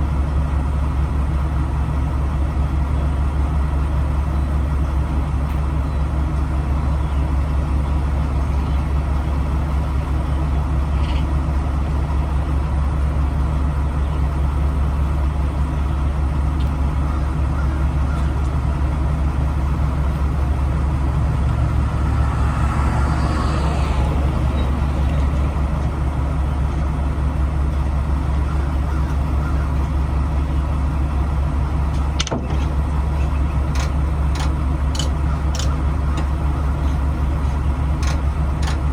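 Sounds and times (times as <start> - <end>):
diesel truck engine idling: 0.0 - 38.9
sharp clicks: 33.7 - 36.3, 38.0 - 38.8.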